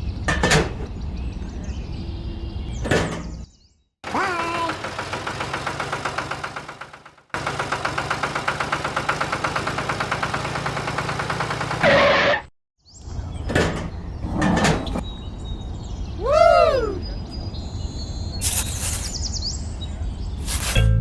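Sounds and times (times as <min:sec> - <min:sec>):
small engine running: 0:04.1 - 0:12.4.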